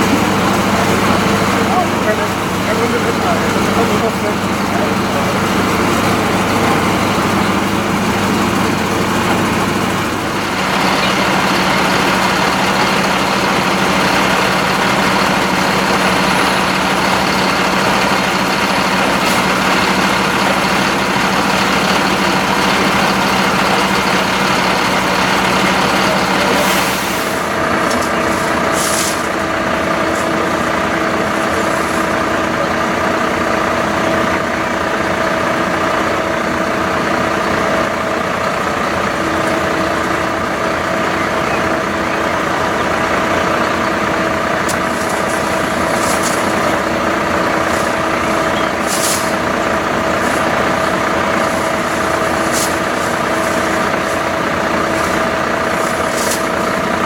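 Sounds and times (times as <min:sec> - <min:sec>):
diesel engine running: 0:00.0 - 0:57.0
air hissing: 0:28.2 - 0:29.5, 0:47.6 - 0:49.6.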